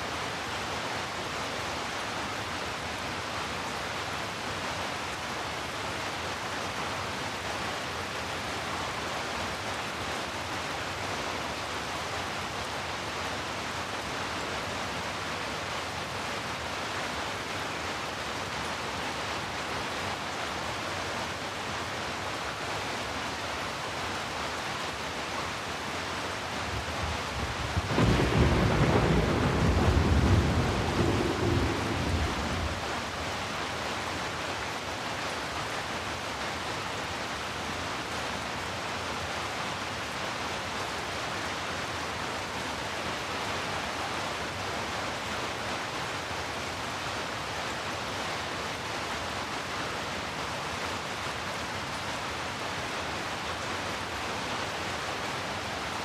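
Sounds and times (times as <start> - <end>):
steady rain: 0.0 - 56.0
thunder rumble: 26.8 - 33.2.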